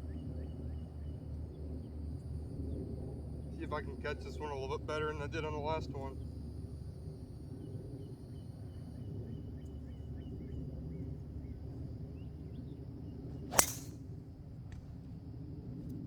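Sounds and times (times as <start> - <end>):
golf club striking ball: 13.5 - 13.9.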